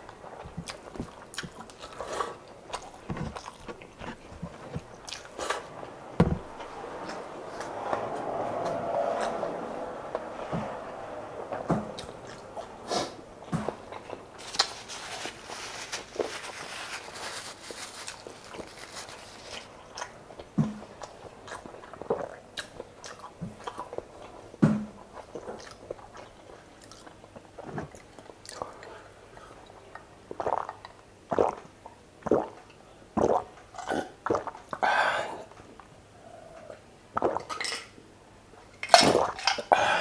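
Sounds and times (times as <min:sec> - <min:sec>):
person chewing and smacking food: 0:00.0 - 0:07.7, 0:17.7 - 0:24.5, 0:25.1 - 0:29.5
paper tissue rustling: 0:14.3 - 0:19.9
person gulping a drink: 0:19.9 - 0:24.0, 0:29.7 - 0:35.5, 0:36.2 - 0:37.9, 0:38.8 - 0:40.0.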